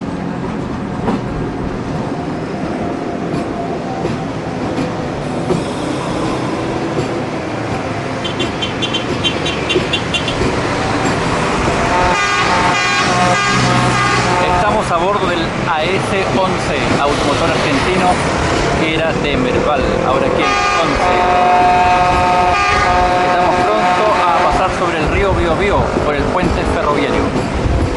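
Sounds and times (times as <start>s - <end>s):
railcar engine drone: 0.0s - 27.9s
train horn: 11.8s - 14.8s, 20.3s - 24.9s.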